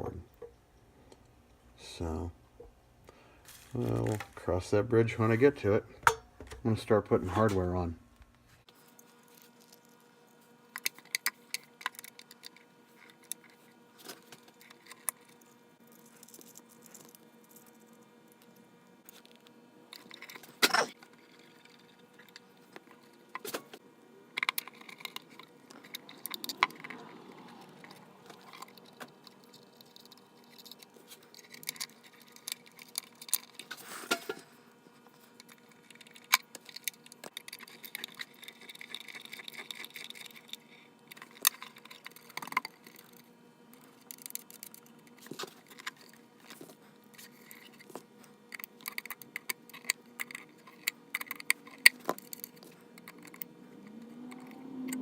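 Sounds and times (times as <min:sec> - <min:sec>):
metal parts clicking and rattling: 0:24.4 - 0:34.4, 0:35.3 - 0:43.2, 0:43.8 - 0:55.0.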